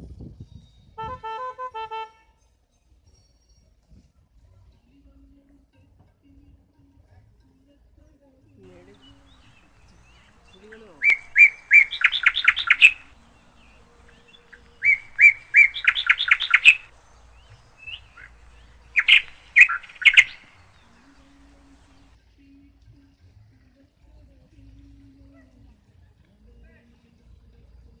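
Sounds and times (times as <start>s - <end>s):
songbird singing: 8.6s - 22.2s.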